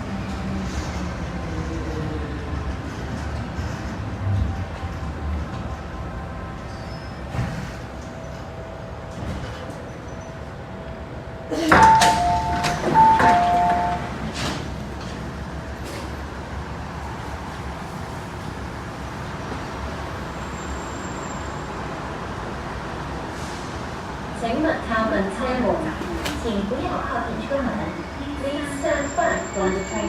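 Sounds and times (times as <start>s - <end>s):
train equipment hum: 0.0s - 20.8s
train doors opening clunk: 7.2s - 8.5s, 11.5s - 16.3s.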